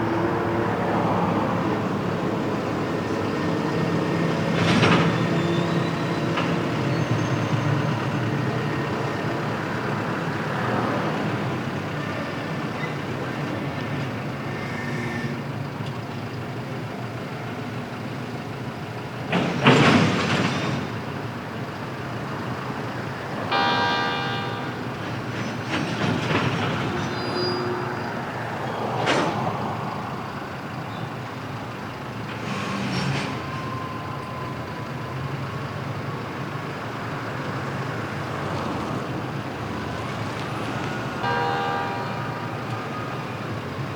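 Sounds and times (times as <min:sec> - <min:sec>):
freight train rumbling by: 0:00.0 - 0:43.9
short pitched tone: 0:23.5 - 0:25.0.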